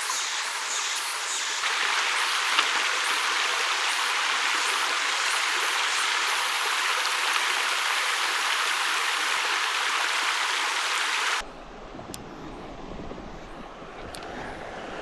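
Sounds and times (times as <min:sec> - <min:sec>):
stream rushing over rocks: 0:00.0 - 0:11.4.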